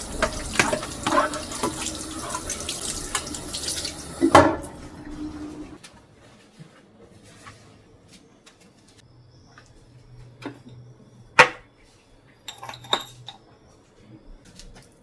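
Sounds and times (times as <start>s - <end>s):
dishes and utensils clinking: 0.0s - 5.8s, 12.4s - 13.5s.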